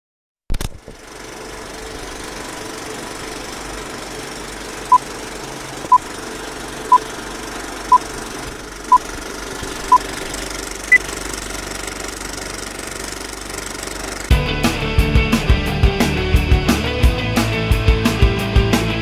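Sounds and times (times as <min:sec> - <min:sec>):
film projector clattering: 0:00.6 - 0:14.3.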